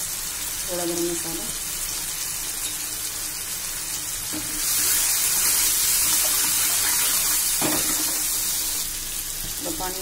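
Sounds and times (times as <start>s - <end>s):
masala sizzling in oil: 0.0s - 10.0s
knock on pan: 7.6s - 8.2s.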